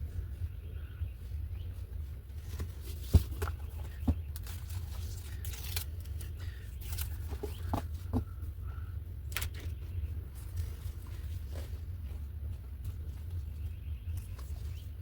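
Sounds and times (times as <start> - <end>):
steady low hum: 0.0 - 15.0
paper rustling: 2.4 - 8.3
small taps and knocks: 2.6 - 4.6.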